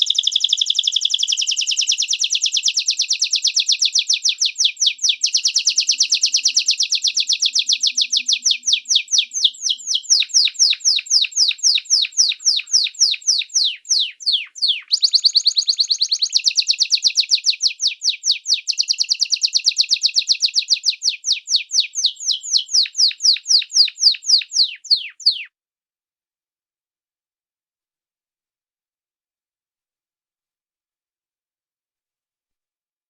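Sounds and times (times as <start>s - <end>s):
songbird chirping and trilling: 0.0s - 25.5s.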